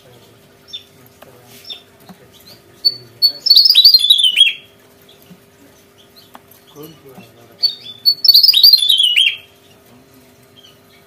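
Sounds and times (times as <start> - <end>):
bird singing: 0.6 - 1.0, 1.6 - 9.8, 10.5 - 11.0
faint high bird calls: 1.6 - 5.2, 7.6 - 9.8.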